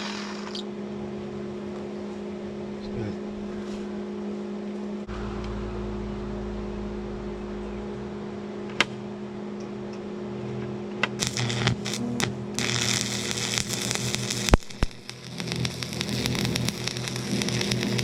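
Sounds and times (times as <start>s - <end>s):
steady electrical hum: 0.0s - 18.0s
arc welder crackling: 11.0s - 18.0s.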